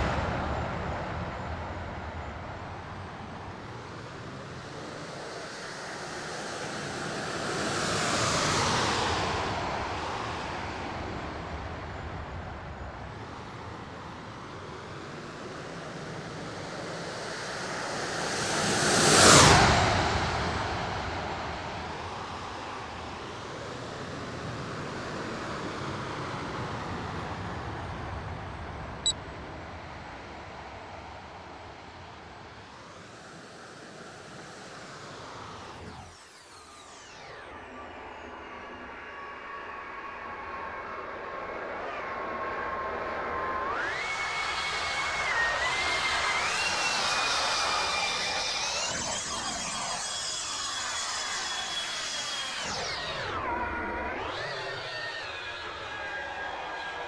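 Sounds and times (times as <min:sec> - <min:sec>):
model jet flying past: 0:43.7 - 0:57.0.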